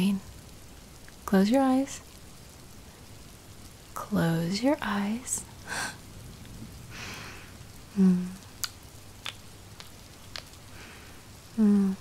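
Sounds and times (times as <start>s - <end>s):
steady rain falling: 0.0s - 12.0s
soft breaths: 5.1s - 6.2s, 6.8s - 8.5s, 10.6s - 12.0s
low hummed vocal sound: 7.9s - 8.6s, 11.5s - 12.0s
faint sharp ticks: 8.6s - 10.6s.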